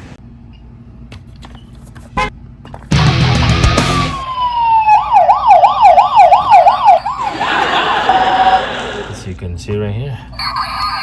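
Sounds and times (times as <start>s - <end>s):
toy siren wailing: 4.0s - 7.5s, 10.4s - 11.0s.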